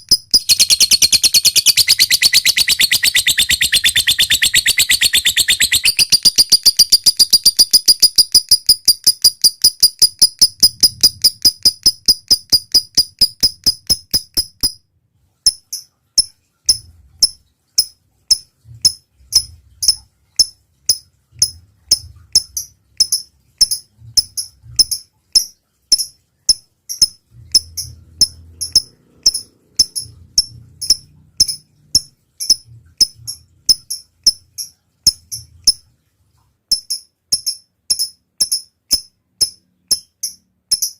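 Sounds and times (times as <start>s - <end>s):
lovebird chirping: 0.0s - 14.8s, 15.5s - 35.9s.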